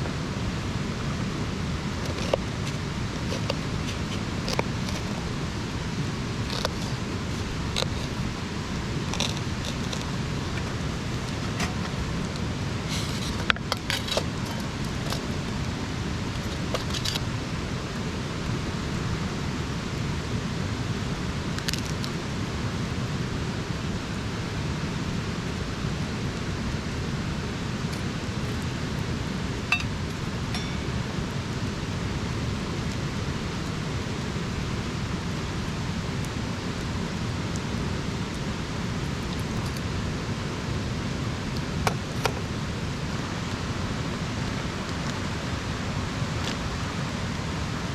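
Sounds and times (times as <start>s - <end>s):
campfire hissing: 0.0s - 47.9s
fire crackles and pops: 1.6s - 17.4s.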